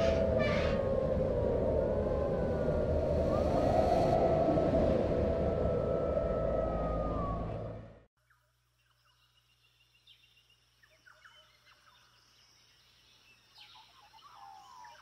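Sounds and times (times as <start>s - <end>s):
faint chirping bird calls: 8.2s - 15.0s.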